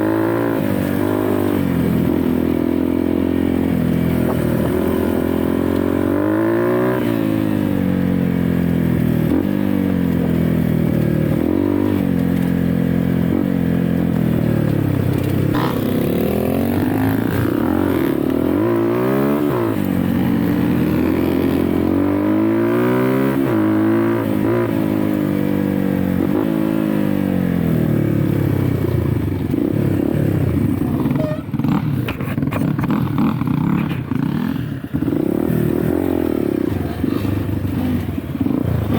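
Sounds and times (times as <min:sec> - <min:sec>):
dirt bike engine revving: 0:00.0 - 0:08.4, 0:10.7 - 0:38.9.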